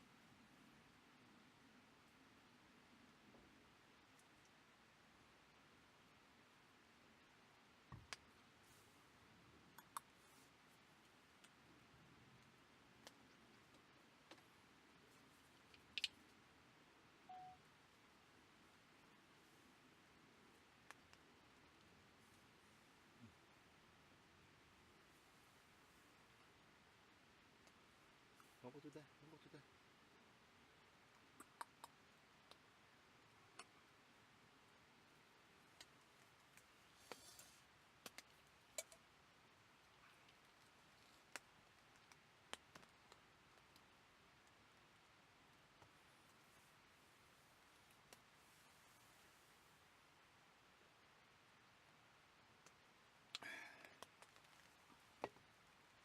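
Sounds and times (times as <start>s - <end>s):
faint clicks and ticks: 3.2s - 4.6s, 7.9s - 8.6s, 9.4s - 16.5s, 20.3s - 22.5s, 27.2s - 29.6s, 30.7s - 49.8s, 51.3s - 56.0s
soft rustle: 8.3s - 9.3s, 10.1s - 11.2s, 36.0s - 37.7s, 45.8s - 49.9s
faint sharp clicks: 9.7s - 10.2s, 12.3s - 14.5s, 15.6s - 16.4s, 20.8s - 21.9s, 31.1s - 32.7s, 35.8s - 39.1s, 39.8s - 44.6s, 52.6s - 56.0s
short beep: 17.3s - 17.6s.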